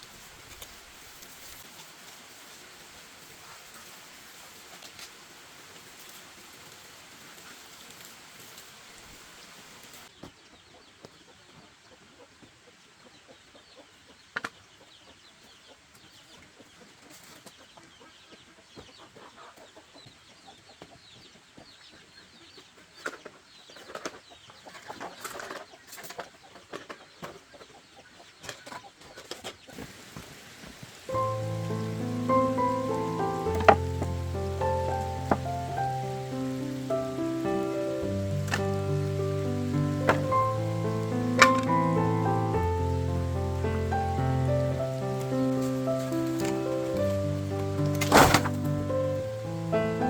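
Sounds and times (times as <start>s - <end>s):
faint steady hiss: 0.0s - 20.4s, 29.7s - 50.0s
chickens clucking: 10.1s - 29.8s, 31.1s - 50.0s
music: 31.1s - 50.0s.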